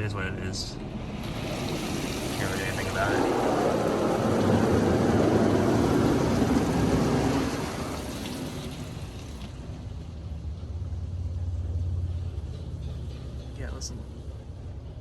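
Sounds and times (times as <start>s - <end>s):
low machine hum: 0.0s - 15.0s
water spraying onto a truck: 0.9s - 12.2s.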